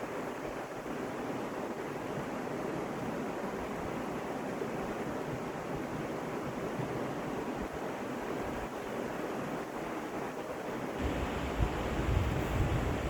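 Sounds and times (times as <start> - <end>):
water rushing over rocks: 7.5 - 13.0.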